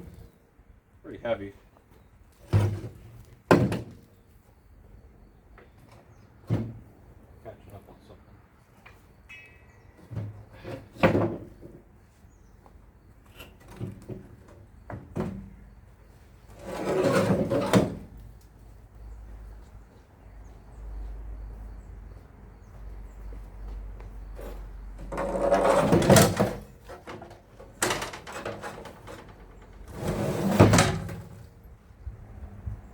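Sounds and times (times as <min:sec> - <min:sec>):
knocks and clunks of metal parts: 0:25.0 - 0:31.4.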